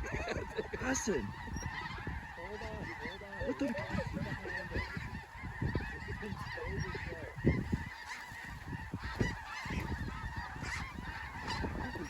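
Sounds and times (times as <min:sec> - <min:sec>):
geese calling: 0:00.0 - 0:12.0.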